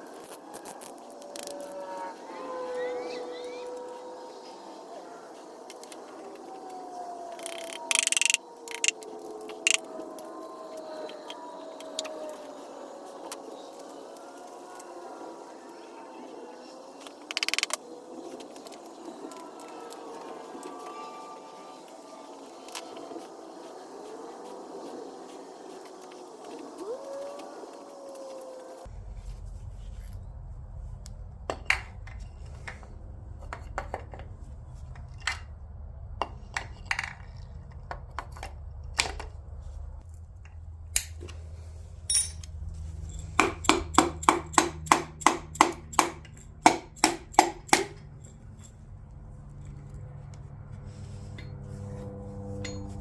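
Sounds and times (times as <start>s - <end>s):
metallic clicks and clinks: 42.1s - 49.0s.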